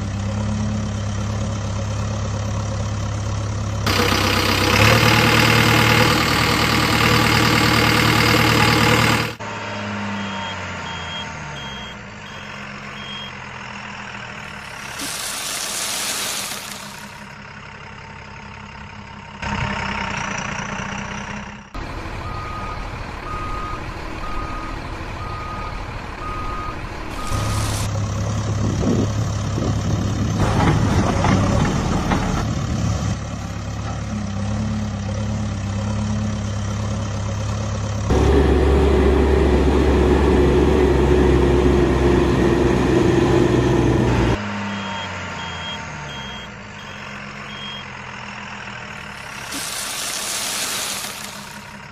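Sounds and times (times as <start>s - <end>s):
heavy construction vehicle engine: 0.0s - 51.9s
reversing alarm beeping: 9.7s - 13.4s, 22.2s - 27.8s, 44.5s - 48.1s.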